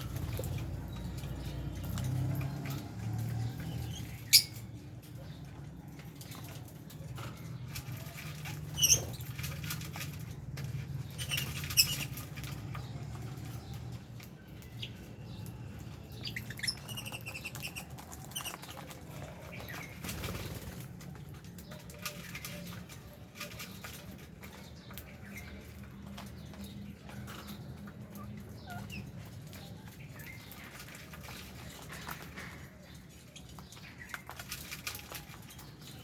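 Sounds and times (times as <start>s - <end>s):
birds shuffling about: 0.0s - 36.0s
bird wings flapping: 19.9s - 21.0s.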